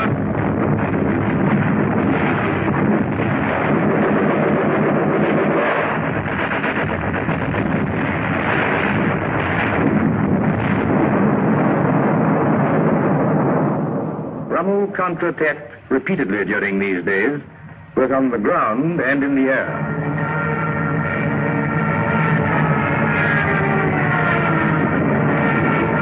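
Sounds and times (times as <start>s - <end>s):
gunfire: 0.0s - 14.4s
shell explosions: 0.0s - 26.0s.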